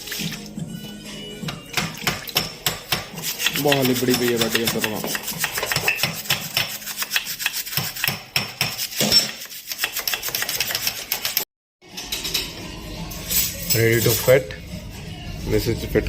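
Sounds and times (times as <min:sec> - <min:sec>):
scrubbing and scraping by hand: 0:03.1 - 0:05.9, 0:06.7 - 0:11.4.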